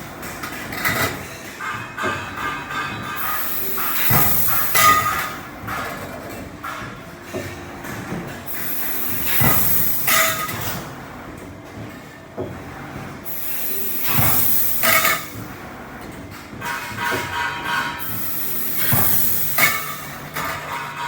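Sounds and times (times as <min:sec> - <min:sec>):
steady machine noise: 0:00.0 - 0:21.0
assist gas hissing: 0:03.2 - 0:04.9, 0:08.5 - 0:10.2, 0:13.3 - 0:15.2, 0:18.0 - 0:20.0.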